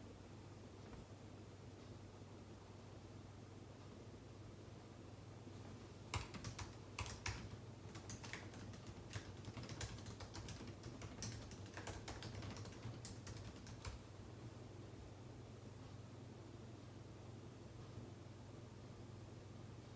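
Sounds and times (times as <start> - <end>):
steady low hum: 0.0 - 19.9
typing on computer keyboard: 6.0 - 14.1.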